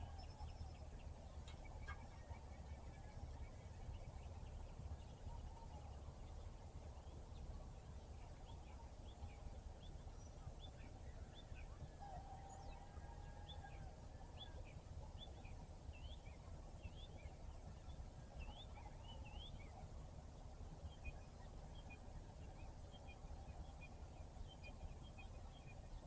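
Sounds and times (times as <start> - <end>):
distant rooster crow: 11.9 - 14.6.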